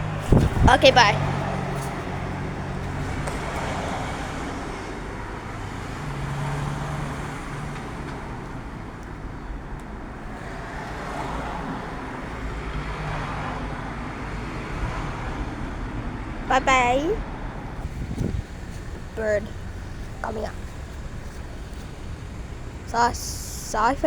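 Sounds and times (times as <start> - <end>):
road and traffic noise: 0.0 - 24.0
car engine running: 16.5 - 24.0.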